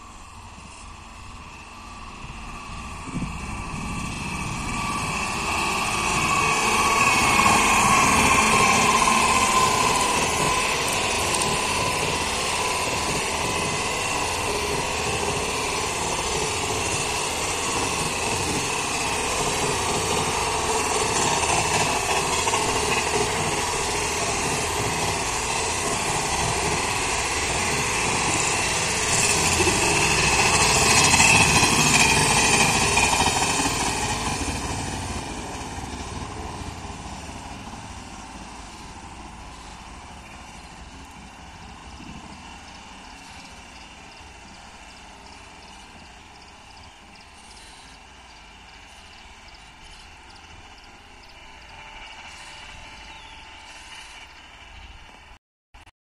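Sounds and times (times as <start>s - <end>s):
train coaches rumbling on track: 0.0s - 55.4s
train whine: 0.0s - 55.9s.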